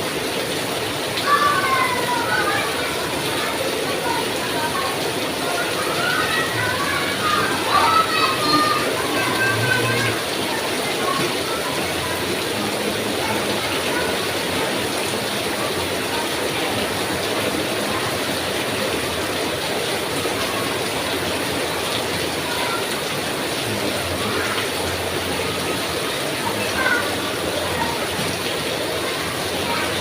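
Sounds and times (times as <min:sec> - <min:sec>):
heavy rain falling: 0:00.0 - 0:30.0.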